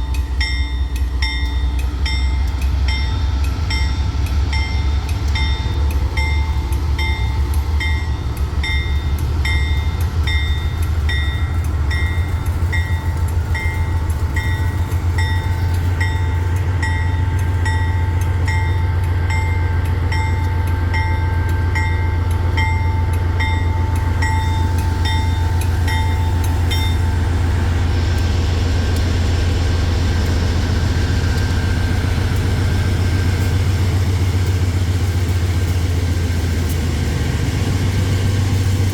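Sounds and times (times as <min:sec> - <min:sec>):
diesel train engine rumble: 0:00.0 - 0:38.9
regular ticking: 0:00.1 - 0:27.5
rushing hiss of moving train: 0:23.3 - 0:38.9.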